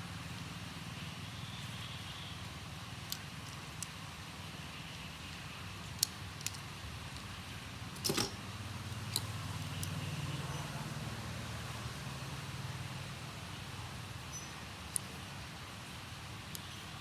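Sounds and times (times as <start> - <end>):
light clicks of small objects: 16.5 - 16.8.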